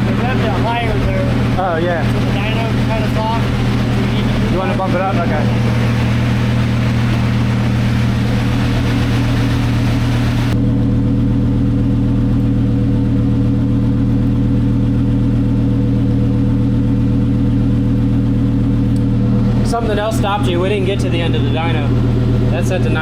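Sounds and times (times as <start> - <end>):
rushing noise: 0.0 - 10.6
car engine idling: 0.0 - 23.0.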